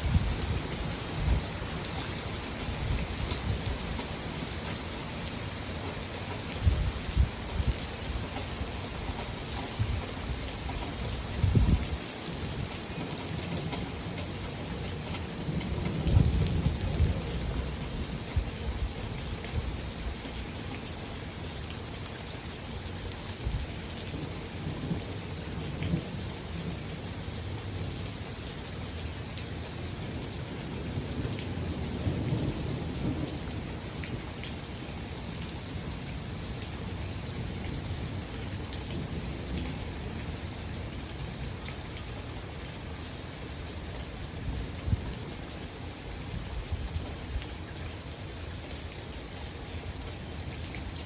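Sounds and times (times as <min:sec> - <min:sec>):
steady rain falling: 0:00.0 - 0:51.0
thunder rumbling: 0:06.2 - 0:19.9, 0:30.2 - 0:34.4.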